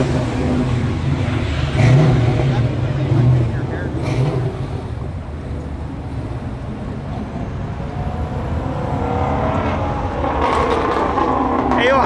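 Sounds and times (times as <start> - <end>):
car engines rumbling: 0.0 - 12.0.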